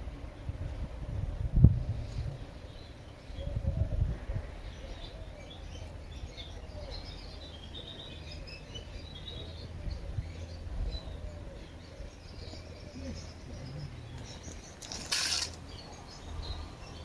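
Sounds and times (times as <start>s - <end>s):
small birds chirping: 2.0s - 17.0s.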